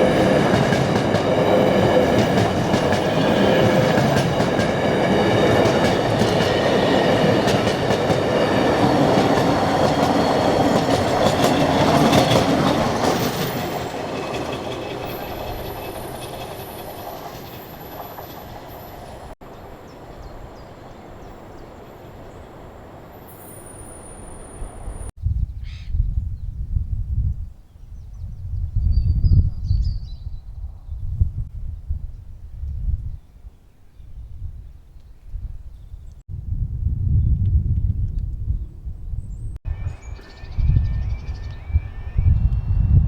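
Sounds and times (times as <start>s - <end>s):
train wheels clattering: 0.0s - 19.4s.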